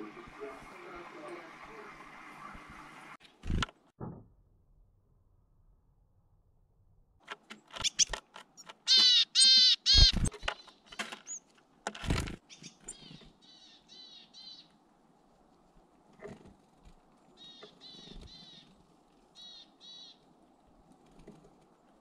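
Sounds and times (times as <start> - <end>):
bird calls: 7.6 - 11.5, 12.4 - 14.8, 17.3 - 20.4.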